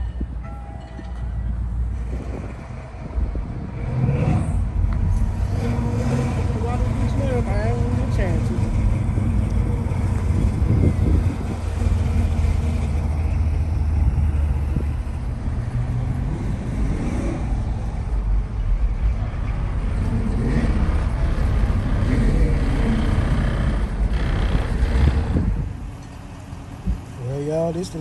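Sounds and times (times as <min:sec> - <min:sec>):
car engine running: 0:04.5 - 0:16.4.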